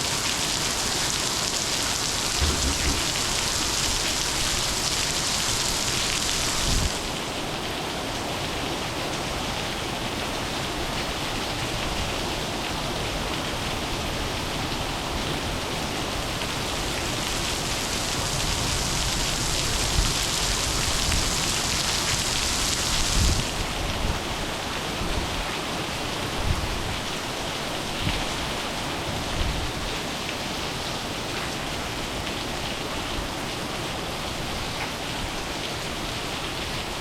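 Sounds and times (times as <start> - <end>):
heavy rain falling: 0.0 - 37.0
dull low bump: 2.4 - 3.4.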